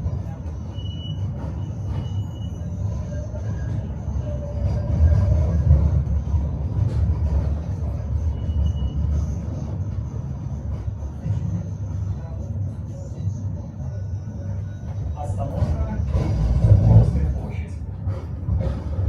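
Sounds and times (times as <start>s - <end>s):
faint wheel squeal: 0.0s - 6.2s, 7.4s - 9.8s
tram wheels rumbling on rails: 0.0s - 19.0s.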